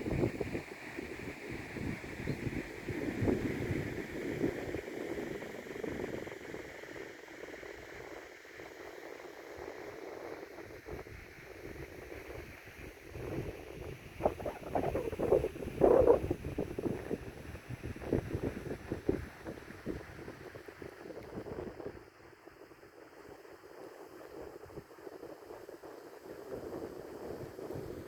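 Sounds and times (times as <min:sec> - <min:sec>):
wind buffeting microphone: 0:00.0 - 0:00.6, 0:01.7 - 0:06.2, 0:13.1 - 0:22.0.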